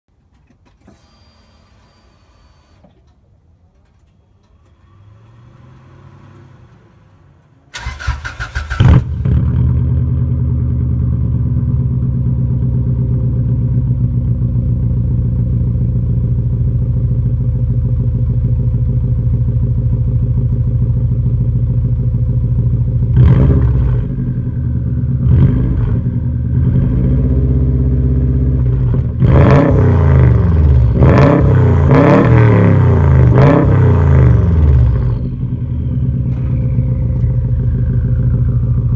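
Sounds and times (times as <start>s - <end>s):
car engine idling and revving: 3.8s - 38.9s
starter cranking: 7.8s - 9.0s.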